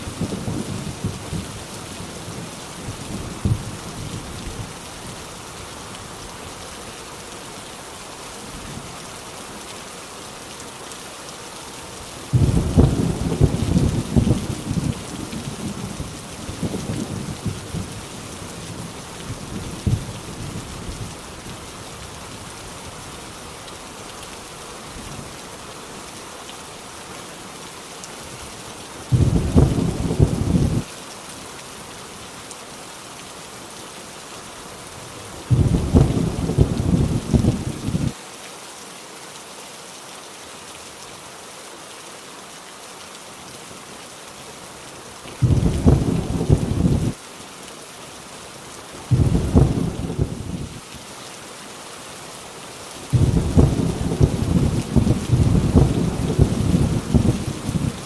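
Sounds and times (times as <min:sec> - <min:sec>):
heavy rain on a tin roof: 0:00.0 - 0:58.0
thunder rumbling: 0:12.3 - 0:18.0, 0:29.1 - 0:30.8, 0:35.5 - 0:38.1, 0:45.4 - 0:47.2, 0:49.1 - 0:50.7, 0:53.1 - 0:58.0.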